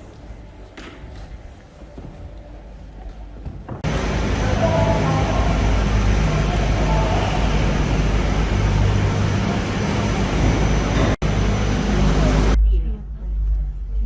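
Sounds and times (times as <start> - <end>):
vehicle interior road noise: 3.8 - 12.6.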